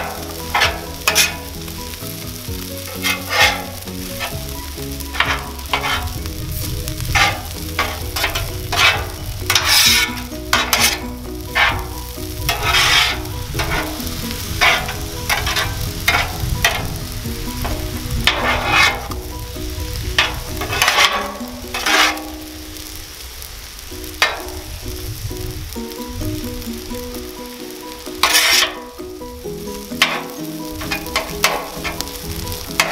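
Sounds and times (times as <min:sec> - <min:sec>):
spatulas scraping on a griddle: 0:00.0 - 0:23.0, 0:24.1 - 0:32.9
food sizzling: 0:00.0 - 0:32.9.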